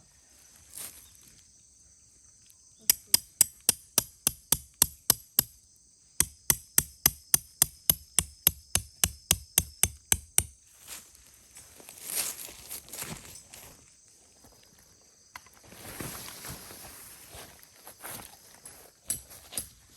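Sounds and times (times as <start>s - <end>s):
high insect chorus: 0.0s - 19.9s
sharp striking blows: 2.9s - 5.6s, 6.2s - 10.6s.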